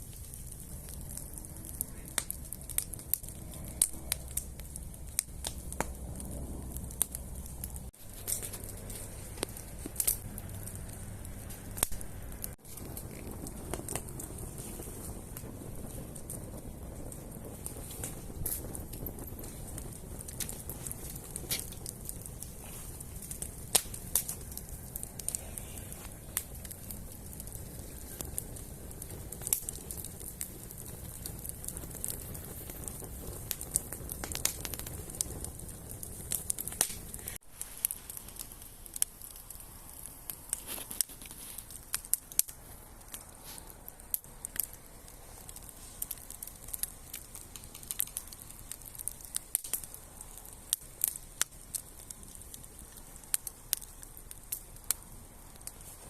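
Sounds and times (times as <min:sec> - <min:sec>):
bonfire crackling and popping: 0:00.0 - 0:56.0
hiss of burning: 0:00.0 - 0:56.0
low rumble: 0:00.6 - 0:37.4.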